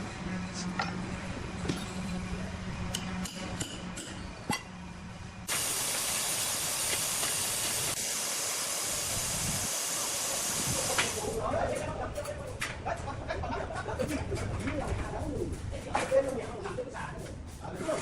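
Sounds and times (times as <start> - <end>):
loud steady hiss: 5.4 - 11.4.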